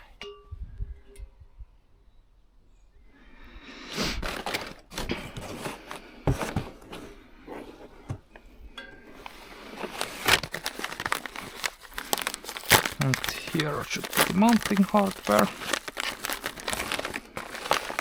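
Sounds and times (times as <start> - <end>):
packaging rustling: 9.2 - 18.0.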